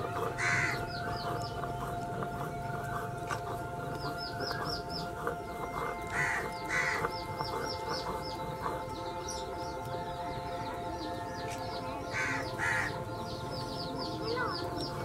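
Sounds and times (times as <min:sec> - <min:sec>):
harsh caw-like bird calls: 0:00.0 - 0:03.2, 0:03.8 - 0:09.4, 0:12.1 - 0:13.1
high downward-sliding bird chirps: 0:00.0 - 0:15.0.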